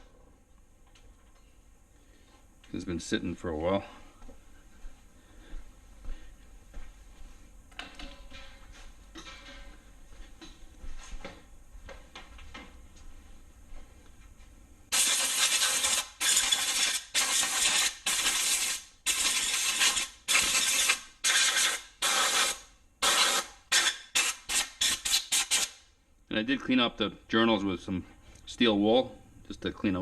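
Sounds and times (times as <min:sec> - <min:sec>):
compressed air blow gun blasts: 0:14.9 - 0:25.8.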